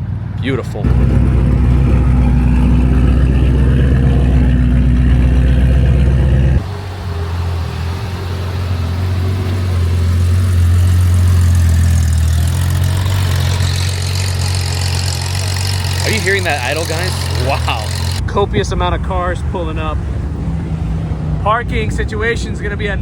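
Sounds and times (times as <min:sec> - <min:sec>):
car engine idling with deep drone: 0:00.8 - 0:23.0
performance car engine running: 0:00.8 - 0:23.0.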